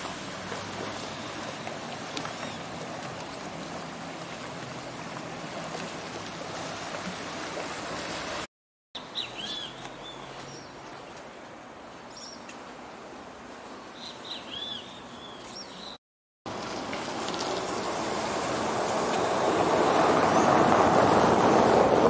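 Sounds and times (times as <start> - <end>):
small waves lapping on sand: 0.0 - 8.5, 16.5 - 22.0
bird chirping: 9.0 - 10.8, 14.0 - 16.0.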